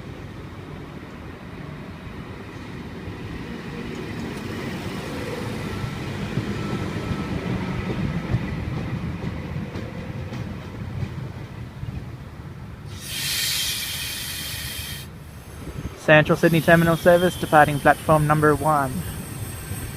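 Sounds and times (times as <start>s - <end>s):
train wheels rumbling over rails: 0.0s - 19.9s.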